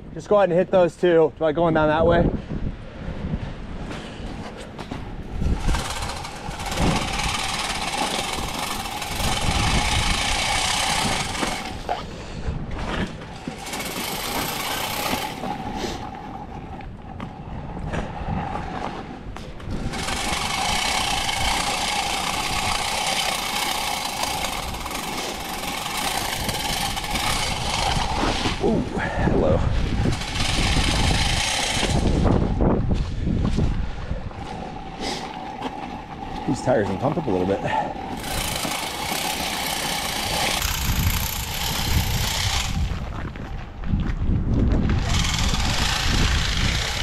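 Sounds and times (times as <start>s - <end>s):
salt spreader hiss and whine: 20.0s - 28.7s, 38.2s - 42.8s.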